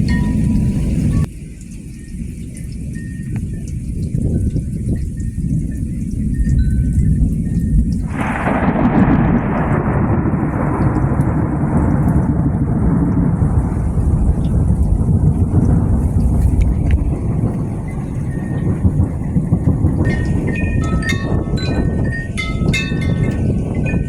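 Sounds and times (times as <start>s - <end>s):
wind chimes ringing: 0.0s - 1.3s, 6.3s - 7.9s, 17.8s - 24.0s
rain hiss: 0.0s - 24.0s
thunder rumbling: 0.0s - 24.0s.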